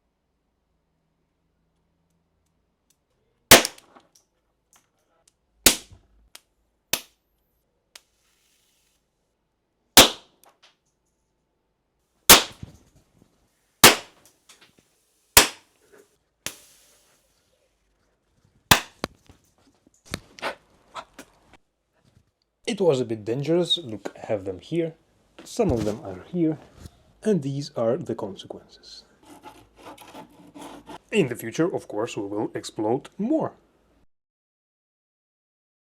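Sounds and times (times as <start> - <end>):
capacitors exploding with bangs: 3.5 - 3.8, 10.0 - 10.3, 12.3 - 12.6, 13.8 - 14.2
brief hiss: 16.5 - 17.4.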